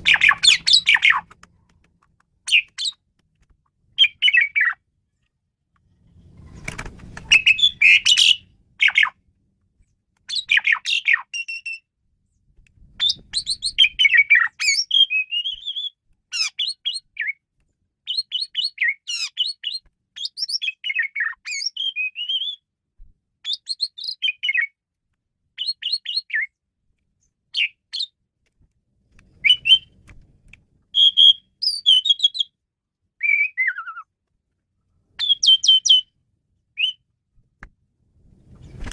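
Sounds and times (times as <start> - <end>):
starling singing: 0.0 - 1.3, 4.0 - 4.8, 7.3 - 9.2, 35.2 - 36.1.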